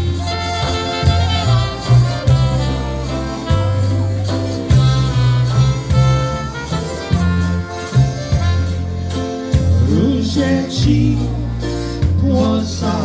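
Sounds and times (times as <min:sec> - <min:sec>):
polka band playing a waltz: 0:00.0 - 0:13.0
person singing: 0:09.8 - 0:13.0.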